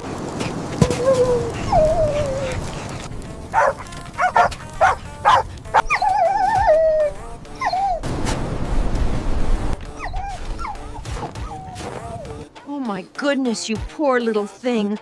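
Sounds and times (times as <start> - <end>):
puppy yelping: 0.8 - 2.6, 3.6 - 8.0, 9.9 - 12.2
puppy whining: 0.8 - 2.8, 3.6 - 8.0, 9.9 - 12.3.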